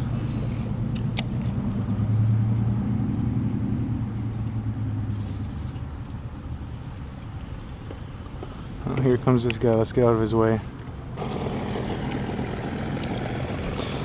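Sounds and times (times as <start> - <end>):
motorboat engine hum: 11.0 - 14.0.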